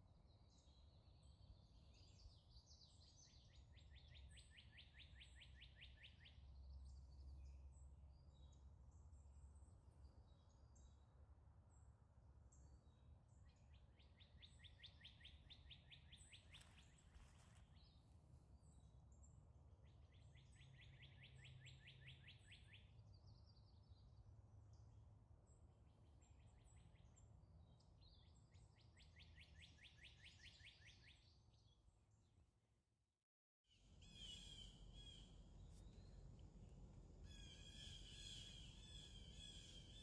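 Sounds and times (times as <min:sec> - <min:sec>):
songbird trilling: 0:37.3 - 0:40.0.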